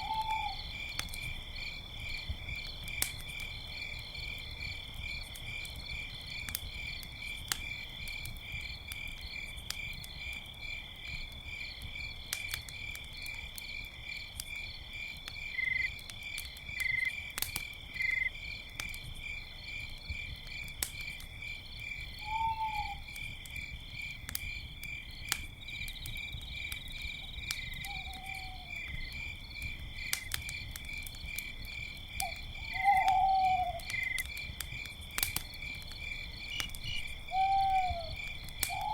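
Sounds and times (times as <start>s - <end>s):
owl hooting: 0.0s - 0.6s, 22.2s - 23.0s, 27.9s - 28.7s, 32.2s - 33.9s, 36.9s - 38.9s
campfire crackling and popping: 0.0s - 38.9s
crickets chirping: 0.0s - 38.9s.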